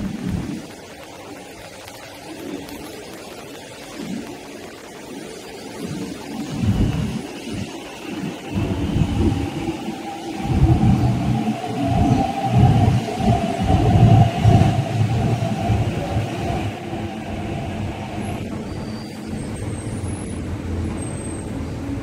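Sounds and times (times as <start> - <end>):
steady whine: 6.1 - 20.0
train rumbling: 6.6 - 22.0.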